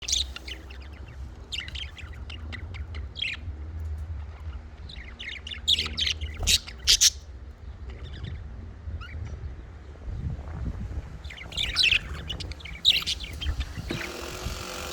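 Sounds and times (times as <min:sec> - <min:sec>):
budgerigars chattering and chirping: 0:00.0 - 0:03.5, 0:04.2 - 0:07.3, 0:11.3 - 0:14.9
budgerigar squawks: 0:06.0 - 0:07.2.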